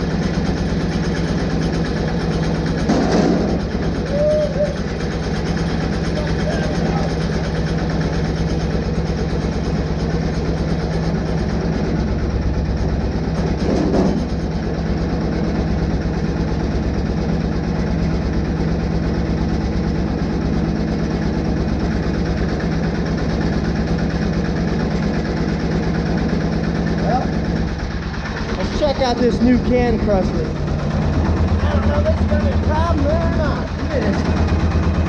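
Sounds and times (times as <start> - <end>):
diesel engine chugging: 0.0 - 35.0.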